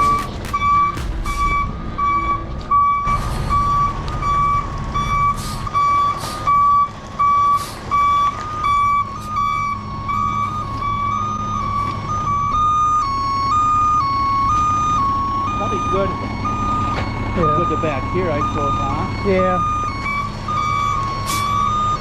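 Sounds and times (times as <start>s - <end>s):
diesel engine rumble: 0.0s - 22.0s
truck backup alarm beeping: 0.0s - 22.0s.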